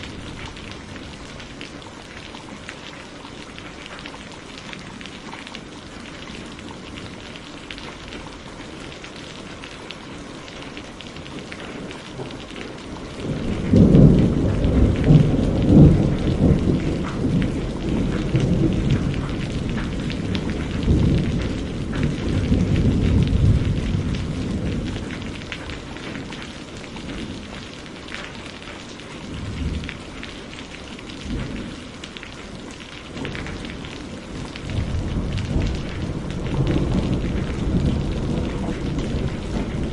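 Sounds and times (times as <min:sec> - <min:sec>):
steady rain: 0:00.0 - 0:39.9
thunder rumbling: 0:13.0 - 0:26.2, 0:33.2 - 0:39.9.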